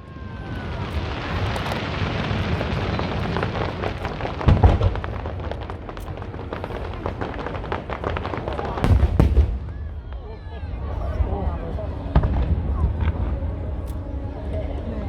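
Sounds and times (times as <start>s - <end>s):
fireworks crackling: 0.0s - 14.9s
firework boom: 1.3s - 10.1s.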